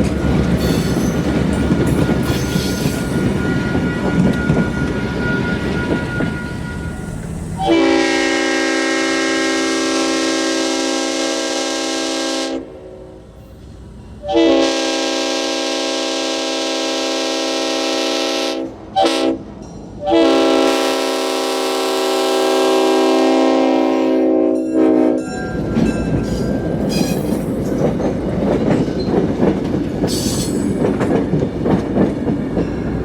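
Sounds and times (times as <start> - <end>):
moving train rumble: 0.0 - 33.0
locomotive air horn blasts: 7.6 - 13.2, 14.2 - 19.4, 20.0 - 25.3.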